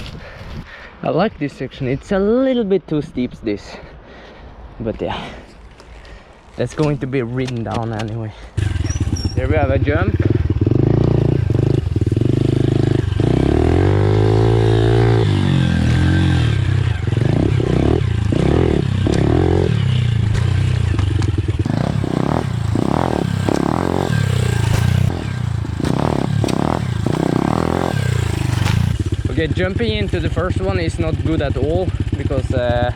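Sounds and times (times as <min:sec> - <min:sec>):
pit bike engine revving: 0:08.6 - 0:29.4.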